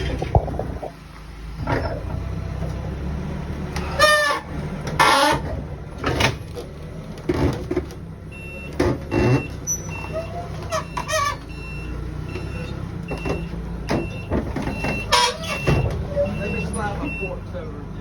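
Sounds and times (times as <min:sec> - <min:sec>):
idling engine hum: 0:00.0 - 0:18.0
squeals and clatters of loading: 0:08.6 - 0:11.8.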